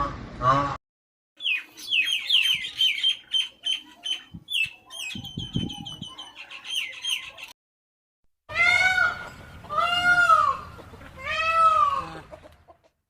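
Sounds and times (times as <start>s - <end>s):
small birds chirping: 1.4s - 7.5s.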